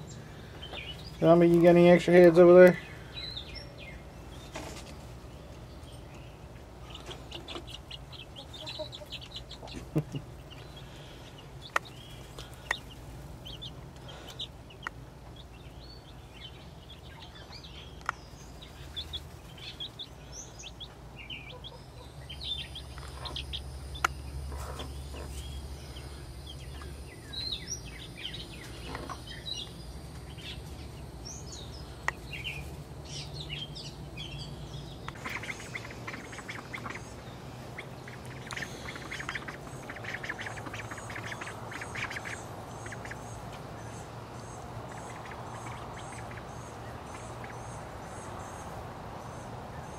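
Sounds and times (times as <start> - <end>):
chicks peeping: 0.0 - 49.9
ducks quacking: 7.0 - 10.6, 35.1 - 44.0, 44.8 - 47.8.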